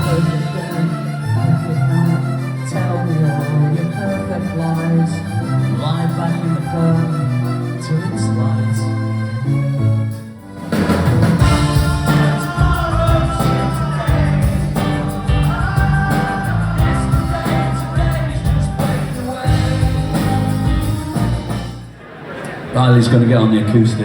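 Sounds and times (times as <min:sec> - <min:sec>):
live band playing pop-rock: 0:00.0 - 0:05.0, 0:10.0 - 0:22.0
bass: 0:00.0 - 0:22.0
drum beat: 0:10.7 - 0:22.0.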